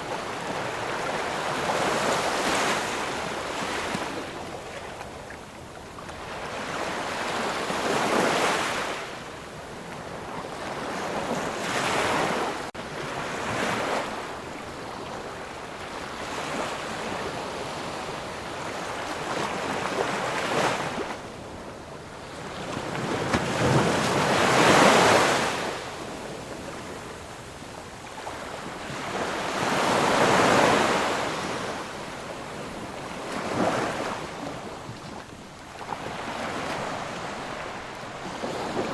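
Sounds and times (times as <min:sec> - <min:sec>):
waves breaking on shore: 0:00.0 - 0:38.9.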